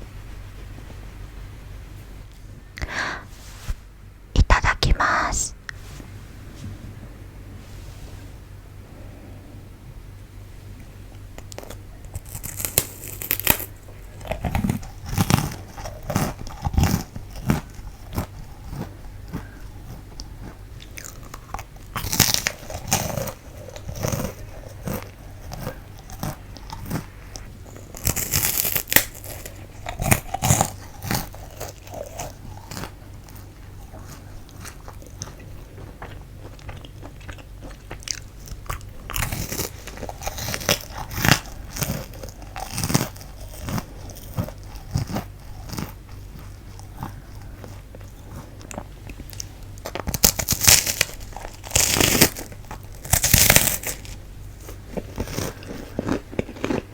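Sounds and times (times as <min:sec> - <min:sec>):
soft chewing: 0:10.7 - 0:56.9
crisp crunching of snack: 0:11.4 - 0:56.9.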